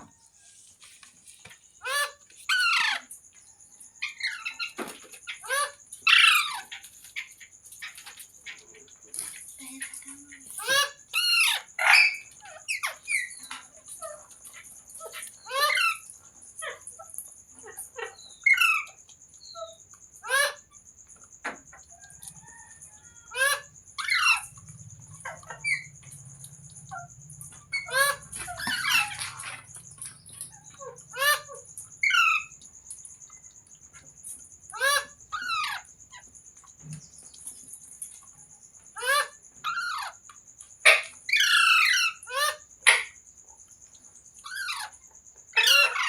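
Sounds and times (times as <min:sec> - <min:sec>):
parrot squawking: 0:45.6 - 0:46.0.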